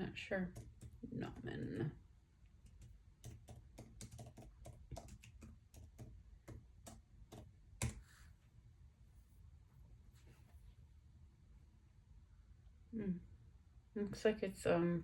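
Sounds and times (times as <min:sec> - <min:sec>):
typing on keyboard: 0:00.5 - 0:01.5, 0:02.6 - 0:08.1.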